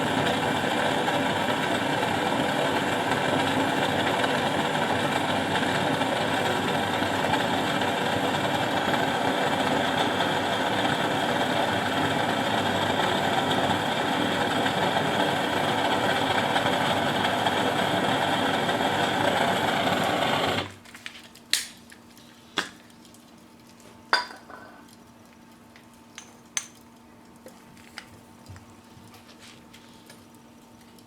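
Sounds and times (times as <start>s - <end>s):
handheld gas burner running: 0.0s - 20.8s.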